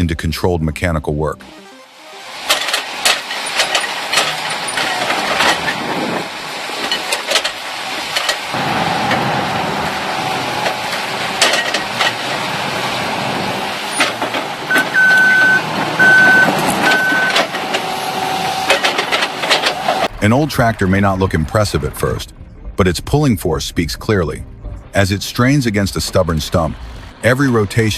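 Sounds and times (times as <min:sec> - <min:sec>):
excavator engine under load: 0:02.1 - 0:22.2
reversing alarm beeping: 0:14.7 - 0:18.7.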